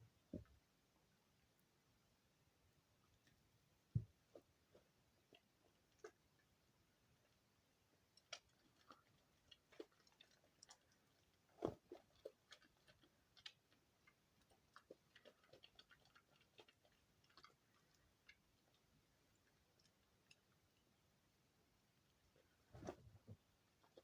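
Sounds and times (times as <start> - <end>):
soap scraps clicking and crackling: 8.1 - 20.6.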